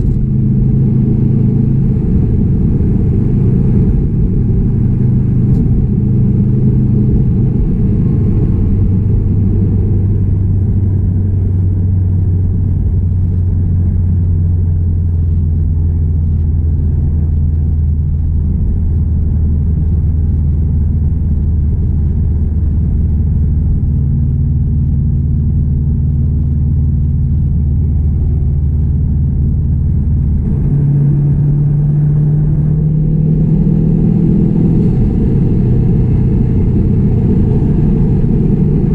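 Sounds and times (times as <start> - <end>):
car engine droning: 0.0 - 38.9
road rumble: 0.0 - 38.9.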